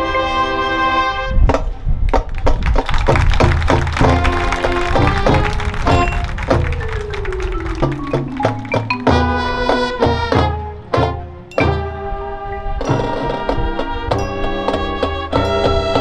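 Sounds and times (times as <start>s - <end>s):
marching band playing: 2.3s - 11.8s.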